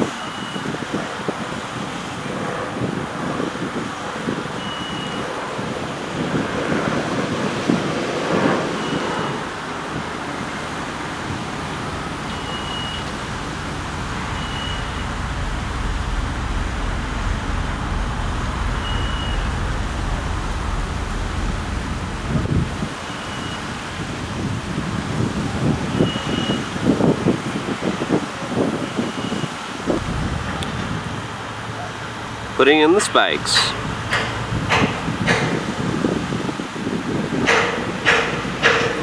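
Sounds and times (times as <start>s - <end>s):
wind buffeting the microphone: 0.0s - 32.6s, 33.4s - 39.0s
construction machinery noise: 0.1s - 27.6s, 29.4s - 39.0s
short high beep: 4.6s - 5.2s, 12.3s - 13.2s, 14.2s - 22.4s, 23.1s - 23.7s
deep rumble: 9.4s - 25.9s, 29.9s - 32.6s, 33.4s - 36.1s.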